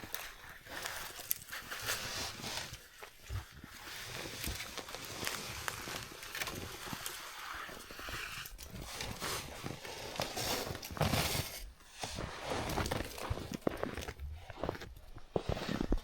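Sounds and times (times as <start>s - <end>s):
sled scraping on snow: 3.8s - 16.0s
footsteps crunching on snow: 8.7s - 16.0s.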